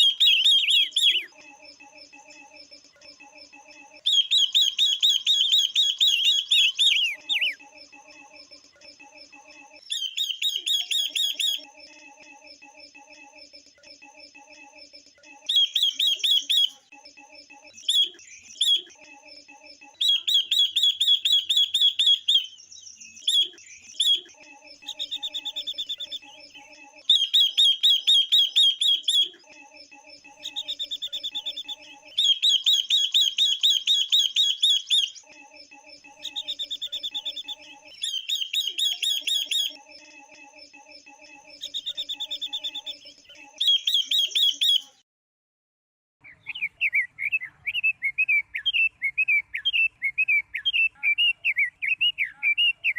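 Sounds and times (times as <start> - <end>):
birds calling fast high chattering: 0.0 - 1.8, 3.9 - 11.9, 15.4 - 16.9, 17.6 - 40.2, 40.9 - 45.0.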